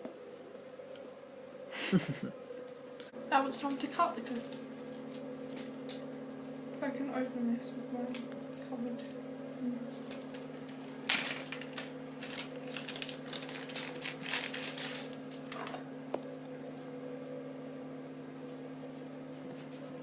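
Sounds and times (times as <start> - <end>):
steady low hum: 0.0 - 20.0
plastic packaging crinkling: 11.1 - 15.8.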